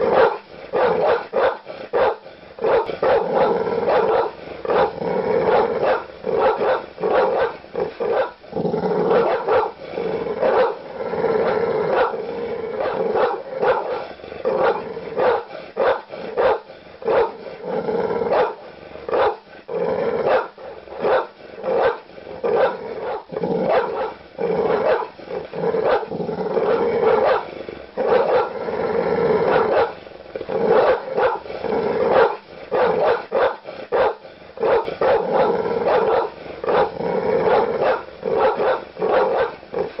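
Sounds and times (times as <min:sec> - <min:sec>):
large dogs barking aggressively: 0:00.0 - 0:40.0.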